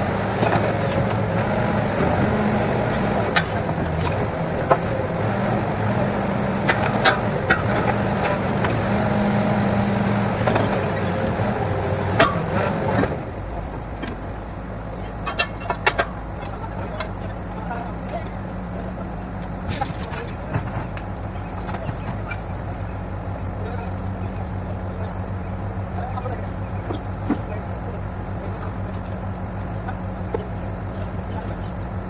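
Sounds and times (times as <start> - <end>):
drilling rig engine running: 0.0 - 32.0.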